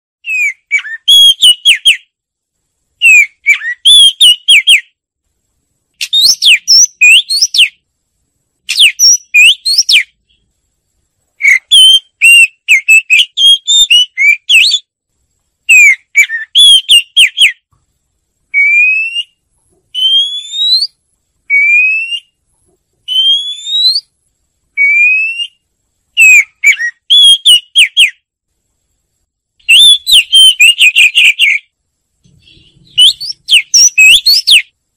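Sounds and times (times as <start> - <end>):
bird singing whistled phrases: 0.2 - 2.1, 3.0 - 4.9, 6.0 - 7.8, 8.7 - 10.4, 11.4 - 14.9, 15.7 - 17.6, 18.5 - 22.4, 23.1 - 24.1, 24.8 - 25.6, 26.2 - 28.2, 29.6 - 31.7, 32.3 - 34.7.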